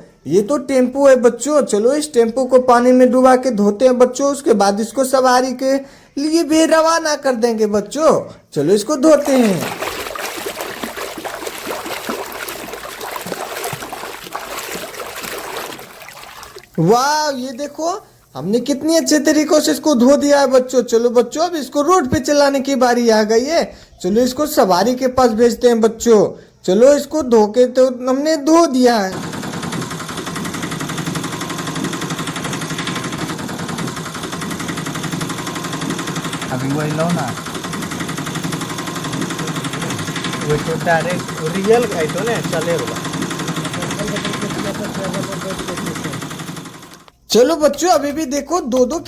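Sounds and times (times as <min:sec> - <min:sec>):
water splashing and bubbling: 0:09.1 - 0:18.3
small engine puttering: 0:29.1 - 0:47.2.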